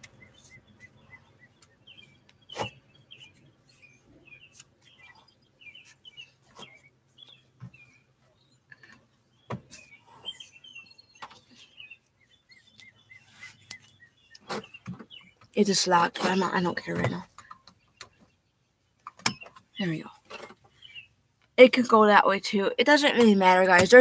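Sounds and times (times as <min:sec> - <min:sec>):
small birds chirping faintly: 0:00.0 - 0:24.0.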